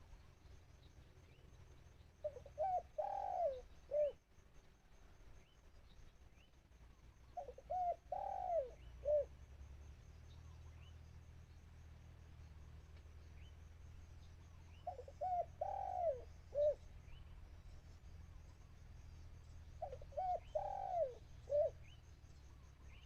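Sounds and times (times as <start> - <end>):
faint small bird chirps: 0.0 - 9.4, 12.4 - 23.0
dove cooing: 2.2 - 4.2, 7.4 - 9.4, 14.8 - 16.9, 19.8 - 21.9.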